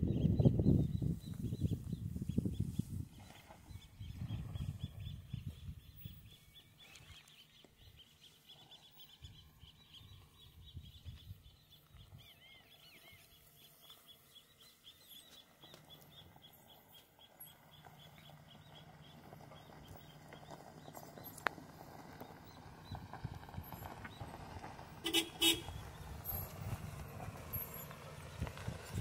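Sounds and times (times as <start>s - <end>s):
pickup truck engine hum: 8.5s - 29.0s
arching bird calls: 23.7s - 27.0s.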